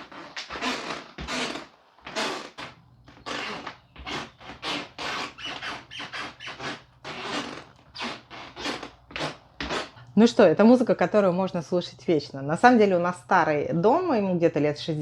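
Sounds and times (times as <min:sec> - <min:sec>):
floorboards creaking under footsteps: 0:00.0 - 0:10.0.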